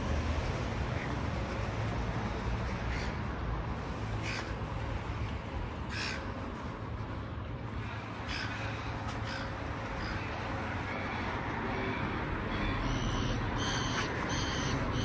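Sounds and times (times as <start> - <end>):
low urban hum: 0.0 - 15.0
crow cawing: 2.9 - 3.2, 4.2 - 4.5, 5.9 - 6.3, 8.2 - 11.2, 12.5 - 15.0.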